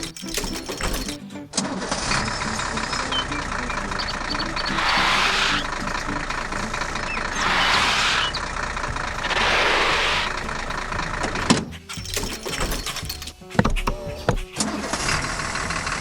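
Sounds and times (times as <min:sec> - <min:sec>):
heavy vehicle engine running: 0:00.0 - 0:13.5, 0:14.2 - 0:16.0
hissing swells: 0:04.6 - 0:05.8, 0:07.3 - 0:10.5.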